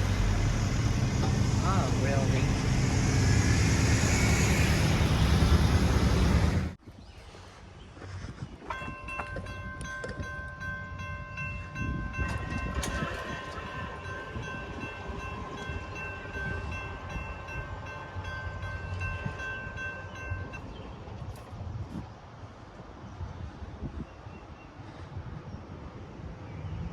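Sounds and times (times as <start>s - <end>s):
low rumble: 0.0s - 6.8s, 11.6s - 22.1s.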